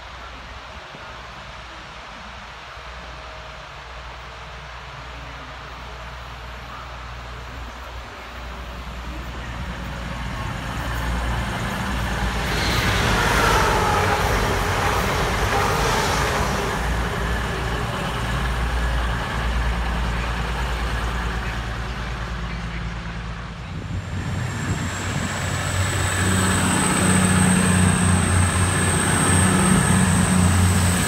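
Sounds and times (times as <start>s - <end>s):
diesel train passing: 0.0s - 31.0s
wheels whining on rails: 6.2s - 31.0s.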